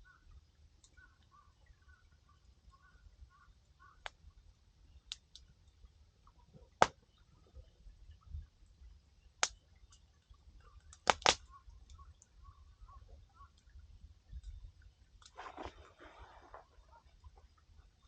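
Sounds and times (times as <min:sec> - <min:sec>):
campfire crackling and popping: 0:05.1 - 0:05.8, 0:06.6 - 0:07.0, 0:09.4 - 0:12.3.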